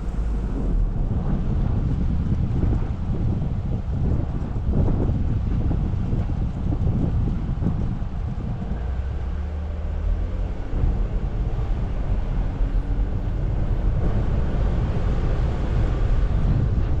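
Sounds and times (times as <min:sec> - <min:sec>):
drivetrain noise: 0:00.0 - 0:01.6
off-road vehicle engine rumble: 0:00.0 - 0:17.0.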